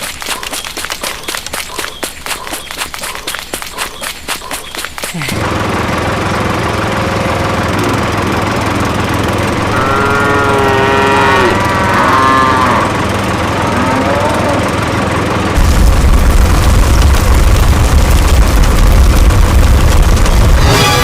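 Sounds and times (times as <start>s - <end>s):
motor hum: 0.0s - 21.0s
loud music with heavy bass: 20.6s - 21.0s.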